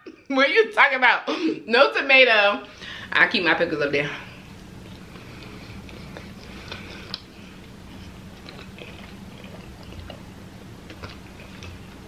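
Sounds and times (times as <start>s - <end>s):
low steady hum: 0.0s - 12.0s
person chewing: 4.4s - 12.0s.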